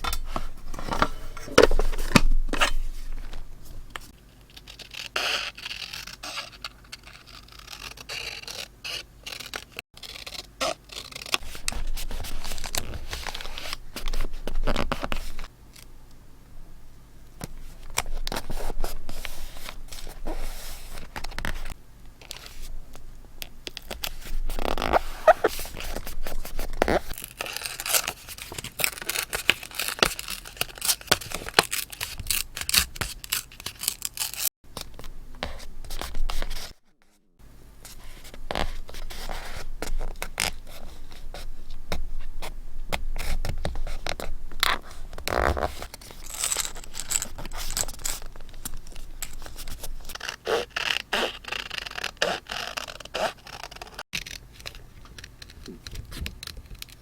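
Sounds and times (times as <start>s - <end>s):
paper scraping and rustling: 0.0s - 15.5s.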